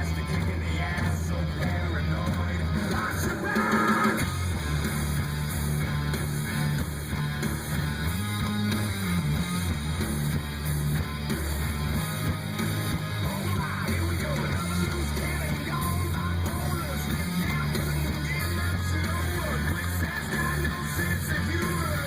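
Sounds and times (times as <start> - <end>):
rock music through car stereo: 0.0 - 22.0.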